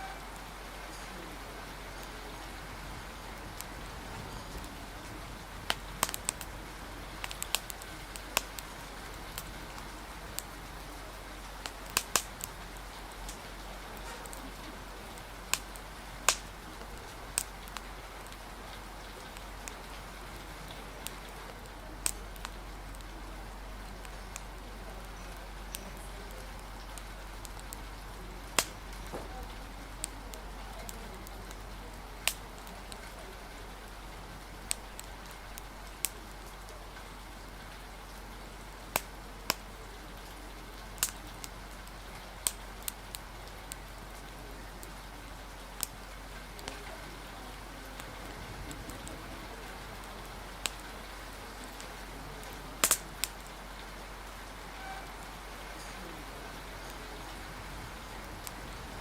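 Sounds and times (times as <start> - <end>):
rain hissing: 0.0 - 59.0
wind: 0.0 - 59.0
wood fire crackling: 0.0 - 59.0.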